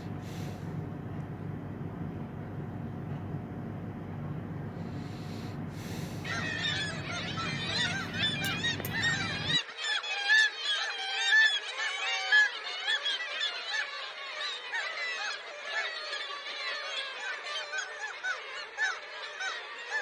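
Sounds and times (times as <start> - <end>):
low steady rumble: 0.0 - 9.6
gulls squawking: 4.8 - 9.6.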